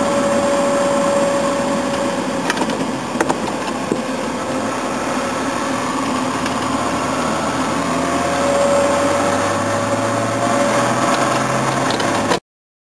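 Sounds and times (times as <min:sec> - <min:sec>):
car engine running while driving: 0:00.0 - 0:12.4.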